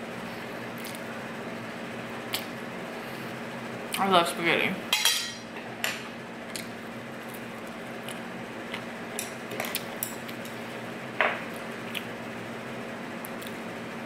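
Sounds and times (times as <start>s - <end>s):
eating noises: 11.8s - 12.2s.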